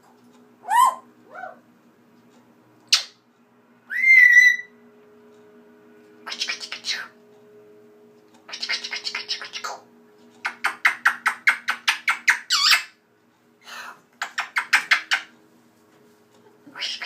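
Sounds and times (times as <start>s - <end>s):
faint steady hum: 0.0s - 17.0s
bird squawking: 0.6s - 1.6s, 3.9s - 4.8s, 8.5s - 13.0s, 16.7s - 17.0s
swooping bird call: 3.9s - 4.8s.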